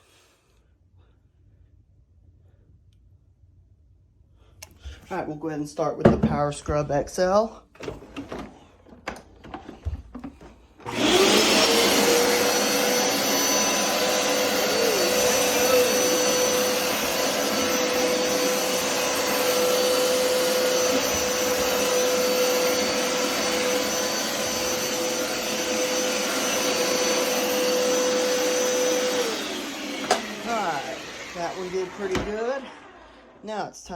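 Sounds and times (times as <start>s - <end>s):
carpet cleaner motor whine: 7.8s - 33.4s.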